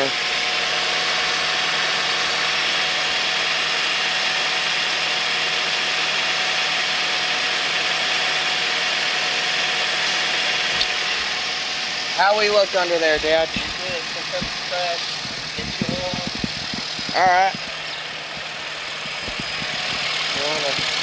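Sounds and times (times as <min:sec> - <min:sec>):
car engine idling: 0:00.0 - 0:21.0
faint steady whine: 0:10.0 - 0:21.0.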